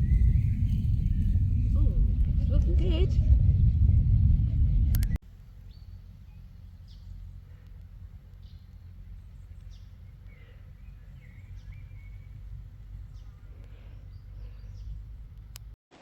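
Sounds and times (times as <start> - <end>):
wind rumble on microphone: 0.0 - 15.8
faint bird chirps: 5.4 - 15.3.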